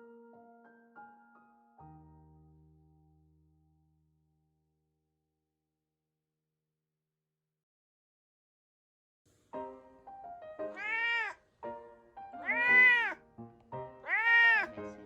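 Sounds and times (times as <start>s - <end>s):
cat meowing: 10.7s - 11.4s, 12.4s - 13.2s, 14.0s - 14.8s
background music: 11.6s - 15.0s.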